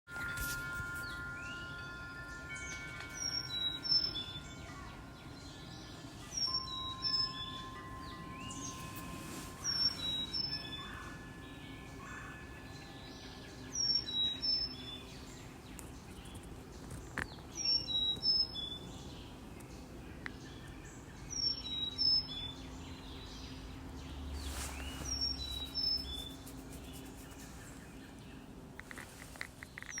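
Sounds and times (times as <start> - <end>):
wind chime: 0.1 - 16.2
outdoor background: 0.1 - 30.0
songbird singing: 0.1 - 30.0.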